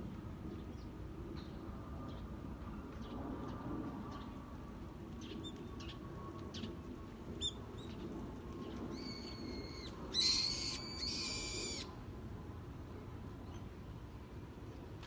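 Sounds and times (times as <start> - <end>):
low steady background rumble: 0.0 - 15.0
small birds chirping: 8.9 - 11.9
harsh buzzy bird calls: 9.0 - 11.9.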